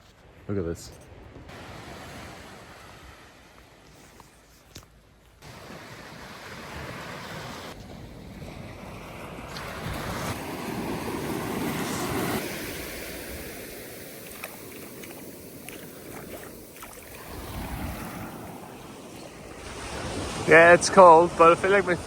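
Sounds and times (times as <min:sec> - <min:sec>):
surf washing on a beach: 0:01.5 - 0:03.6, 0:05.4 - 0:22.0
wind on microphone: 0:06.6 - 0:20.5.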